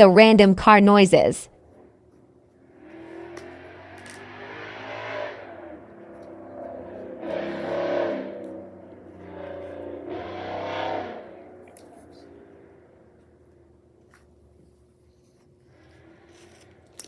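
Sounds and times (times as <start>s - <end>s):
steady low traffic rumble: 0.0s - 17.0s
cars going by: 1.6s - 14.0s, 15.7s - 17.0s.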